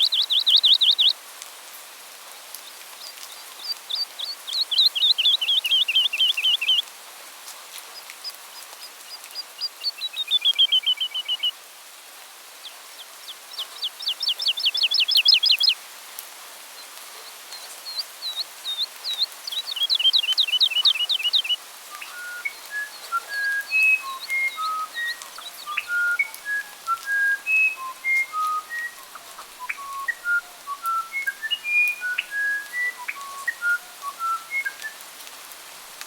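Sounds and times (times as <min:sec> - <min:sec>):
songbird singing rapid trills: 0:00.0 - 0:01.2, 0:03.0 - 0:06.8, 0:08.2 - 0:11.6, 0:12.6 - 0:15.8, 0:17.2 - 0:34.9
clear whistled notes: 0:20.2 - 0:35.0.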